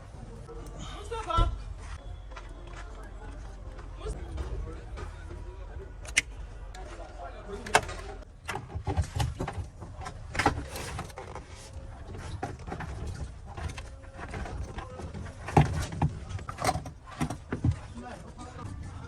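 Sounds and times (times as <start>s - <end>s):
workshop clicks and knocks: 7.6s - 18.4s.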